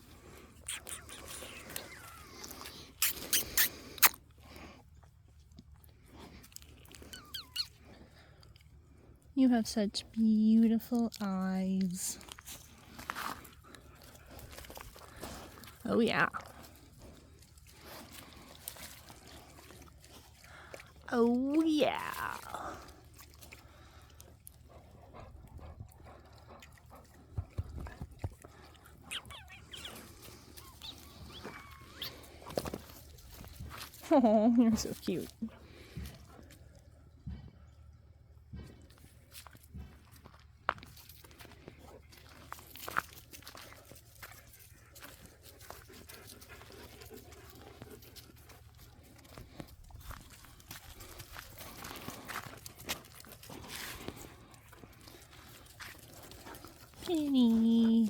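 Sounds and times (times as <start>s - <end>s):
dog licking and slobbering: 0.0s - 58.0s
dog squeaking: 3.0s - 4.1s, 7.0s - 7.8s, 29.0s - 32.2s.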